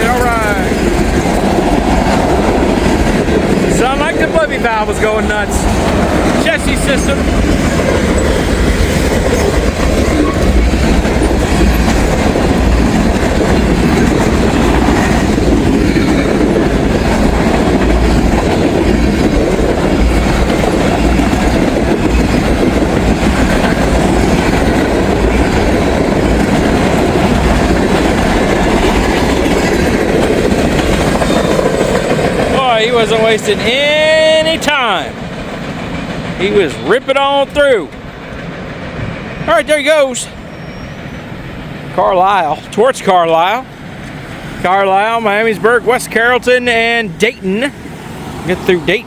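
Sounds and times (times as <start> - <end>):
freight train rumbling past: 0.0 - 49.0.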